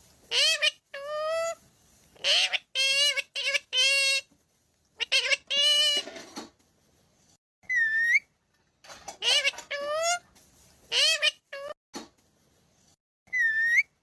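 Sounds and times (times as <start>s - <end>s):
parrot talking: 0.3s - 1.6s, 2.2s - 4.3s, 5.0s - 6.2s, 9.2s - 10.2s, 10.9s - 11.8s.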